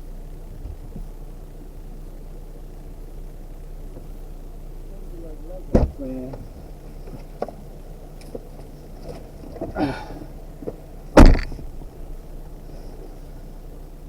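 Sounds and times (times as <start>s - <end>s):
vehicle engine running: 0.0s - 14.0s
knocks: 5.7s - 6.5s, 10.6s - 11.7s
loud thump: 5.7s - 6.5s, 9.1s - 12.0s.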